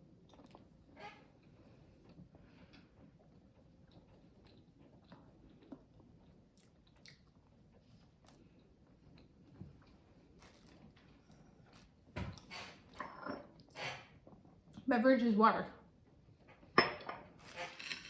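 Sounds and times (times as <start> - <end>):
cookie chewing and crunching: 0.1 - 0.7, 3.1 - 12.0.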